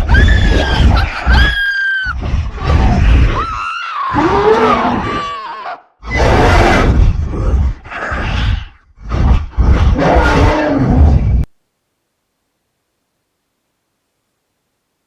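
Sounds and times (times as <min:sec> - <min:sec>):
high-pitched screams: 0:00.0 - 0:02.2, 0:03.1 - 0:06.6.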